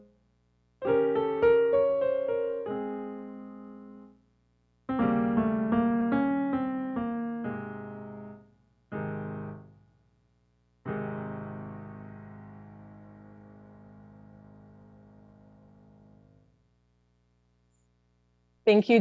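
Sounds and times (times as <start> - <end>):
solo piano playing chords: 0.8 - 4.2, 4.9 - 9.8, 10.8 - 16.5.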